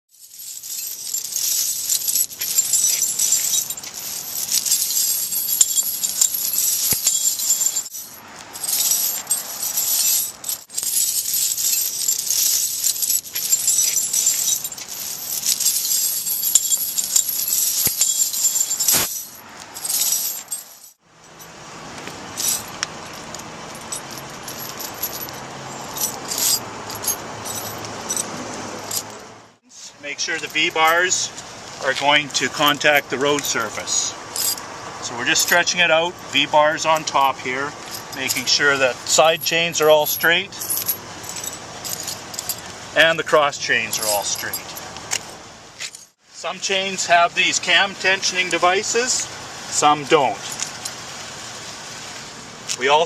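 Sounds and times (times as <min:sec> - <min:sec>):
steel chains jingling: 0:00.1 - 0:29.3, 0:30.1 - 0:46.2, 0:47.4 - 0:51.0
steady background noise: 0:00.2 - 0:53.0.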